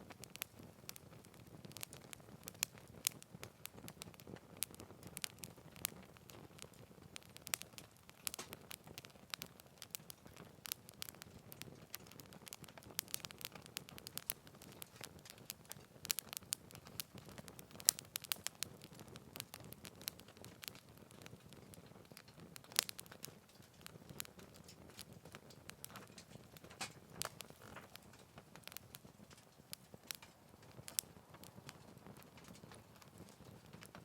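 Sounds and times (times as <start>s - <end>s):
fire pops and snaps: 0.0s - 34.0s
low rush of flame: 0.0s - 34.0s
wood fire crackling: 0.0s - 34.0s.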